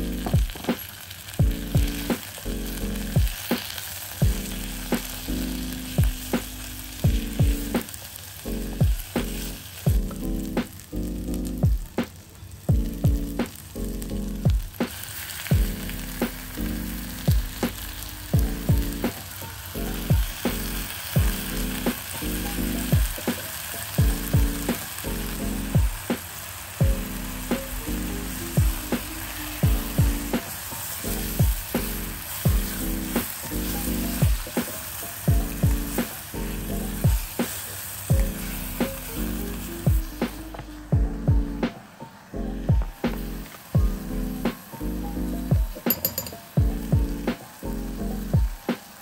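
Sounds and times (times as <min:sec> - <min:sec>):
background music with beat: 0:00.0 - 0:49.0
food sizzling in hot oil: 0:00.0 - 0:49.0.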